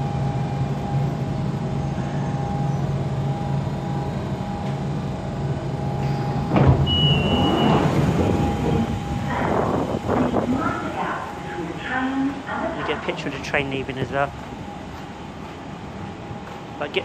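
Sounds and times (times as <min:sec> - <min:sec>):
train equipment humming: 0:00.0 - 0:17.0
short high beep: 0:06.8 - 0:07.8.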